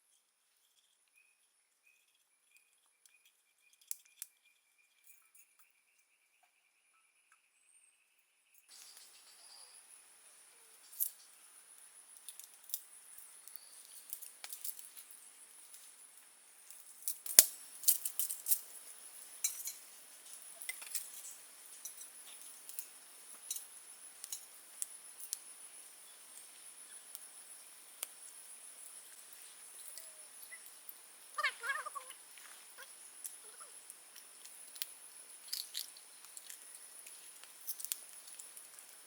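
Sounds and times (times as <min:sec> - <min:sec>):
small hard objects clinking: 0:34.2 - 0:39.0.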